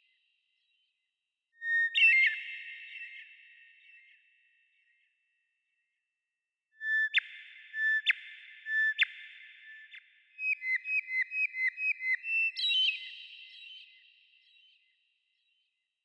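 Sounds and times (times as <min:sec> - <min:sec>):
songbird whistling: 0:10.4 - 0:14.0.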